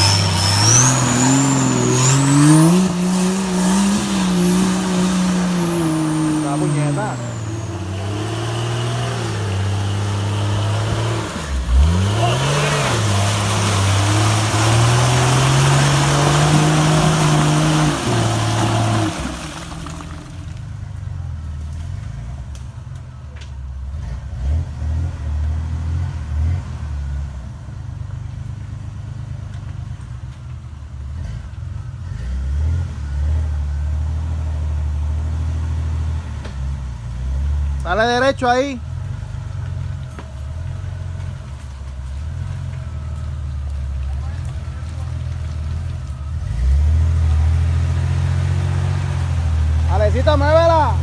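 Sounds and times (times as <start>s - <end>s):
engine revving in mud: 0.0s - 20.6s, 23.9s - 27.3s, 31.1s - 38.6s, 39.3s - 51.0s.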